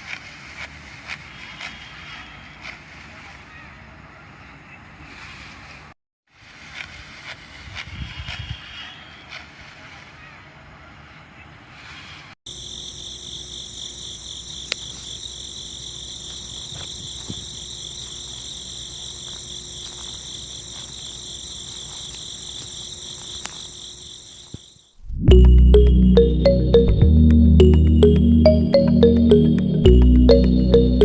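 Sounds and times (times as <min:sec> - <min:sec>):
insect chirring: 0:12.5 - 0:24.9.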